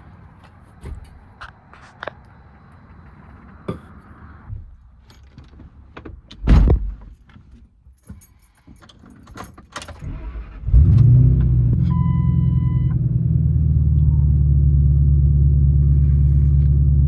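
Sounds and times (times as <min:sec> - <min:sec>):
heavy thump: 0:06.4 - 0:07.2
keys jangling: 0:07.9 - 0:10.1
truck engine starting and running: 0:09.8 - 0:17.0.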